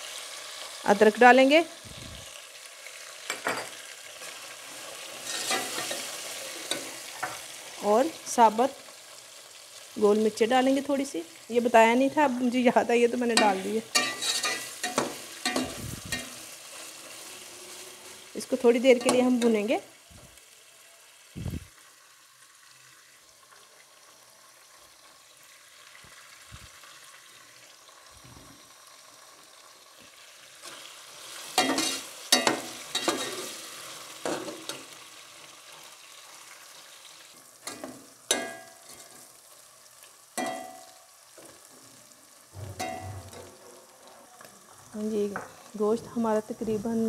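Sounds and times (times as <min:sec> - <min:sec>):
meat sizzling in oil: 0:00.0 - 0:47.0
metal spatula scraping and clanking: 0:03.3 - 0:07.5, 0:13.4 - 0:18.2, 0:31.4 - 0:34.9, 0:42.6 - 0:43.8.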